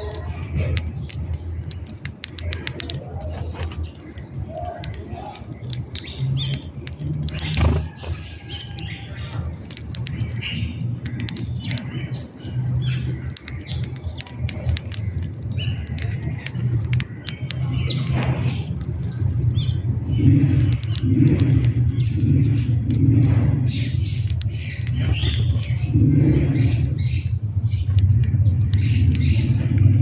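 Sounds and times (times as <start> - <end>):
birds chirping and squawking: 0.0 - 30.0
wings flapping: 1.9 - 8.8, 24.7 - 26.6
low rumble: 17.6 - 30.0.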